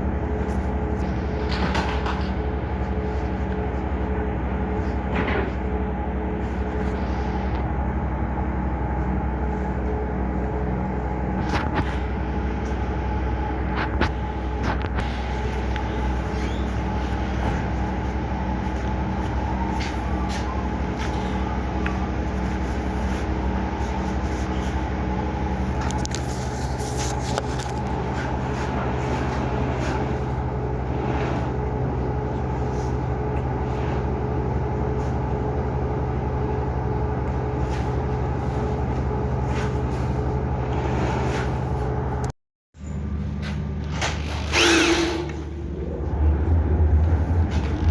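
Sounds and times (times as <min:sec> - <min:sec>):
engine drone: 0:00.0 - 0:47.9.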